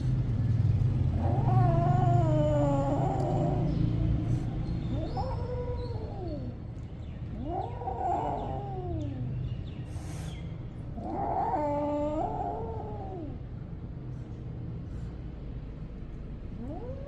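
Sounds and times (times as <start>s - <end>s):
cat meowing: 1.1s - 3.9s, 4.9s - 6.6s, 7.3s - 9.3s, 11.0s - 13.4s, 16.6s - 17.0s.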